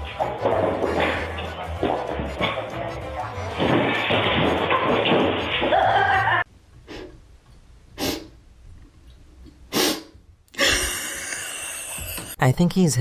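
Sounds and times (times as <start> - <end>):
music: 0.0 - 6.4
person speaking: 12.3 - 13.0.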